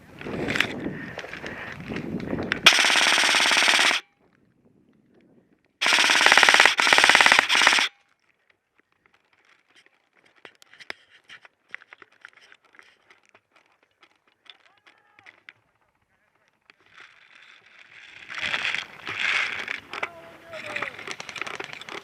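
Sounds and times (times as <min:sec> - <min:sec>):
airsoft gun firing bursts: 0:02.6 - 0:04.0, 0:05.8 - 0:07.9.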